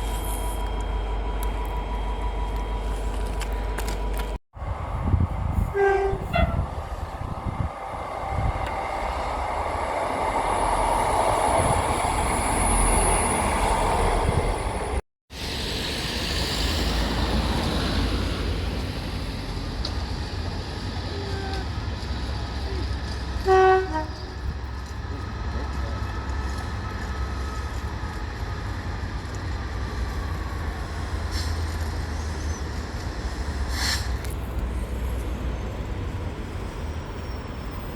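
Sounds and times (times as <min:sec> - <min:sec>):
train rumbling: 0:00.0 - 0:37.9
train horn toot: 0:05.6 - 0:06.8, 0:23.4 - 0:24.4.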